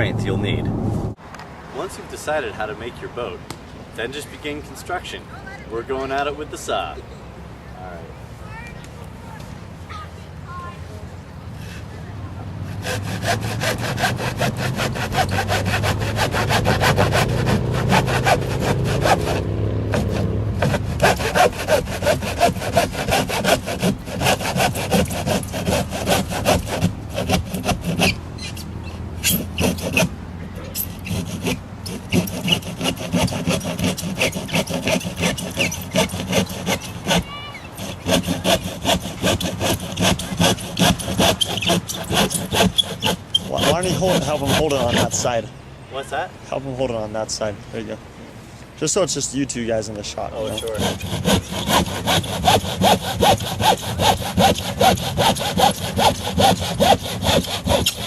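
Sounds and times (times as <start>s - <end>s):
handsaw cutting cardboard: 12.6s - 45.4s, 50.3s - 58.0s.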